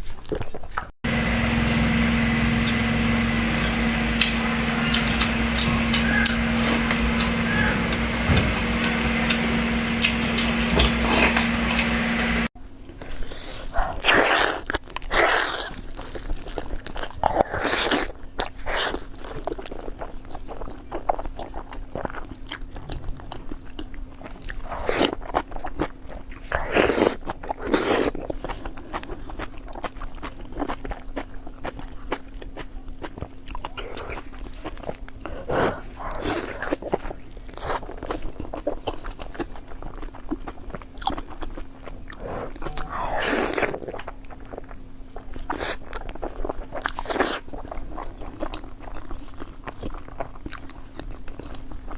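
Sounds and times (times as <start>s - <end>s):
low hum: 1.1s - 12.5s
person chewing crunchy food: 13.1s - 51.9s.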